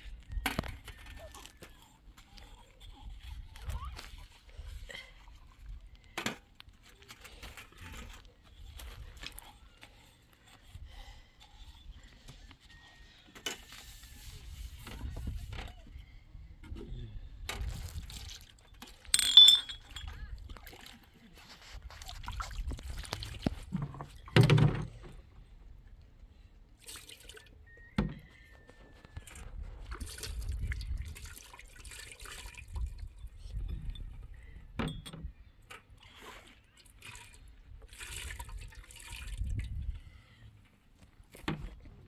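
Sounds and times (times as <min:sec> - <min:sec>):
water sloshing and splashing: 0:17.6 - 0:25.1, 0:26.8 - 0:27.6, 0:29.2 - 0:33.6, 0:35.6 - 0:40.4.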